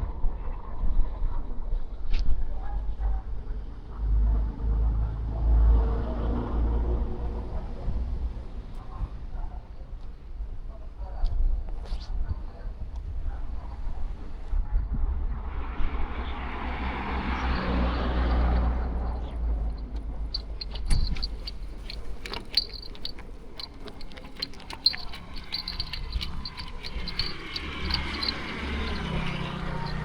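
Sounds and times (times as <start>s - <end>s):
car passing close by: 15.8s - 21.0s
vehicle approaching: 16.0s - 30.0s
scattered clicks and ticks: 19.7s - 30.0s.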